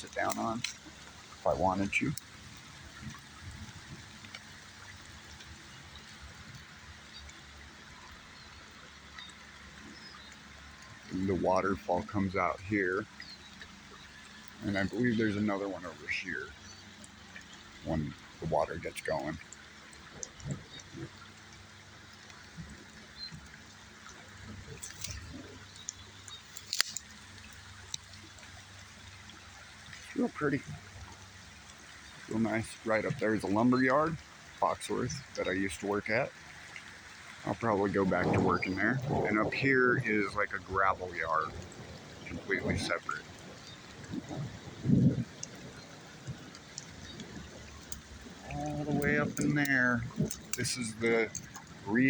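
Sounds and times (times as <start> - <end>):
river water flowing: 0.0 - 52.0
small clicks: 19.9 - 28.2, 46.2 - 51.8.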